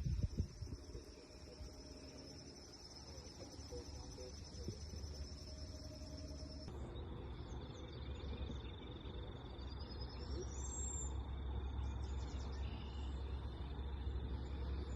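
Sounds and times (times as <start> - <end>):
low rumble: 0.0 - 8.8.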